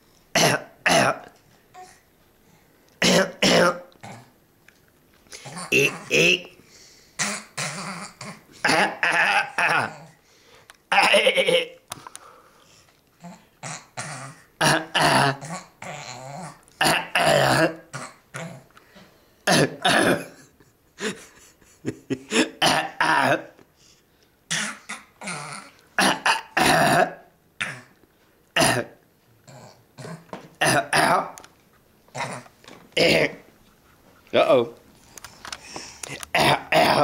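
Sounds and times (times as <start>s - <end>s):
person making throaty vocal noises: 5.3s - 6.6s, 7.2s - 10.2s, 13.2s - 18.7s, 24.5s - 28.0s, 29.5s - 31.4s, 32.1s - 33.4s, 36.0s - 37.0s.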